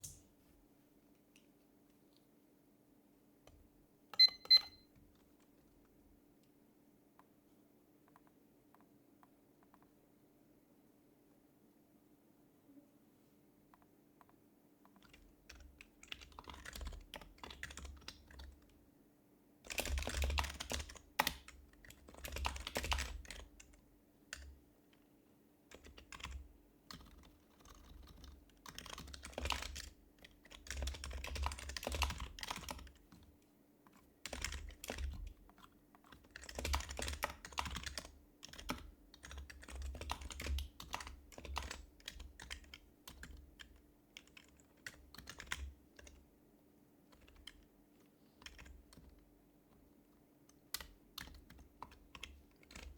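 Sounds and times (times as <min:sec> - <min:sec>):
soft keyboard keystrokes: 0:03.4 - 0:06.6, 0:08.0 - 0:10.0, 0:13.7 - 0:18.8, 0:19.7 - 0:25.0, 0:25.7 - 0:46.3, 0:47.0 - 0:52.9.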